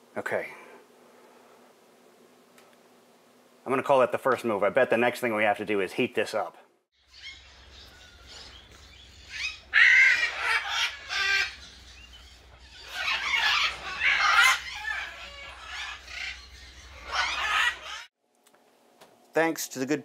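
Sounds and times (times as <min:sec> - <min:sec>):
birds squawking: 0:07.0 - 0:18.1.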